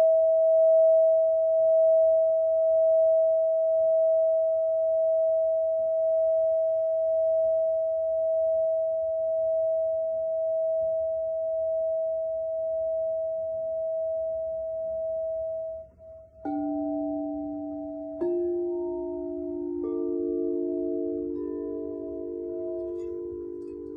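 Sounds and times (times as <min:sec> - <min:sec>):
lower ringing tones: 0:13.4 - 0:23.9
bell-like ringing tone: 0:14.0 - 0:23.9.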